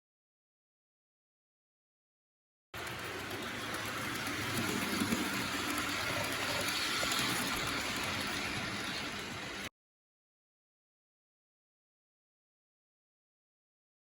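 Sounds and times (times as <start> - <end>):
train rolling along track: 2.8 - 9.7.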